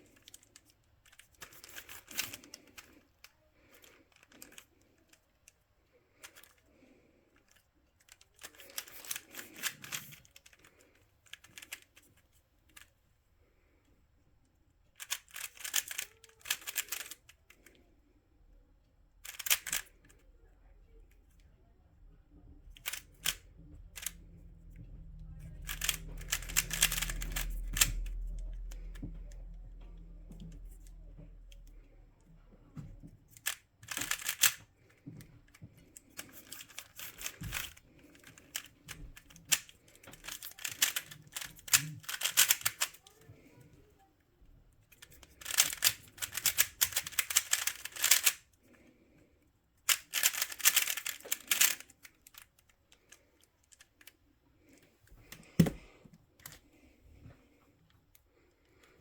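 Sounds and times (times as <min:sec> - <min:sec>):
plastic puzzle clicking: 0:00.0 - 0:05.6, 0:06.2 - 0:06.7, 0:07.4 - 0:12.9, 0:14.9 - 0:17.8, 0:19.2 - 0:20.2, 0:22.7 - 0:23.4, 0:24.0 - 0:24.2, 0:25.6 - 0:29.0, 0:33.3 - 0:43.3, 0:44.9 - 0:48.5, 0:49.8 - 0:56.6.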